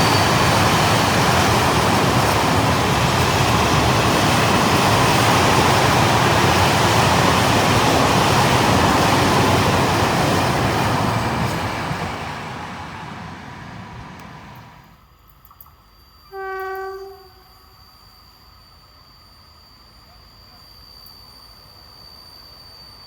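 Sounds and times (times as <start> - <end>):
train passing: 0.0 - 15.2
short train horn blast: 16.3 - 17.7.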